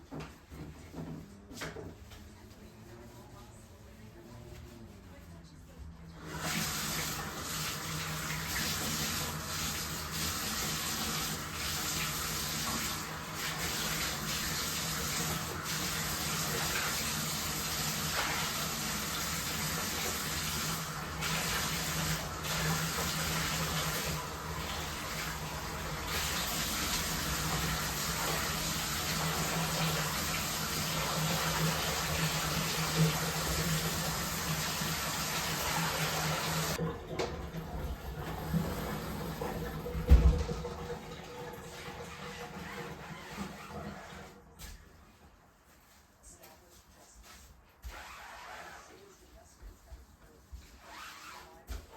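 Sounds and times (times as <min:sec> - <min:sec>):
water running into bathtub: 0:06.2 - 0:45.2.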